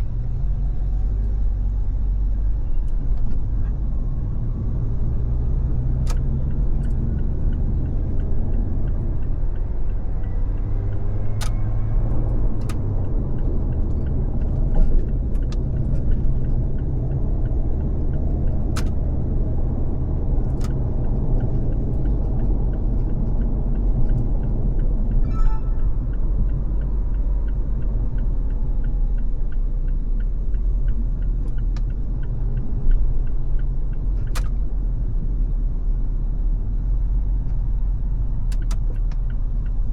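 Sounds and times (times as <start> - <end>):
car road and engine rumble: 0.0 - 39.9
sharp ticks: 5.9 - 35.2.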